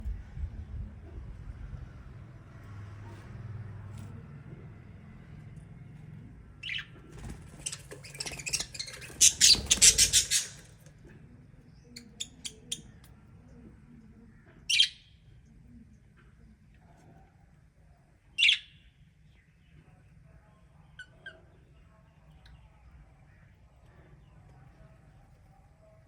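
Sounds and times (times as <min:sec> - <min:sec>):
lovebirds chirping and squawking: 0:06.6 - 0:10.8, 0:11.8 - 0:13.1, 0:14.6 - 0:15.1, 0:18.4 - 0:18.7.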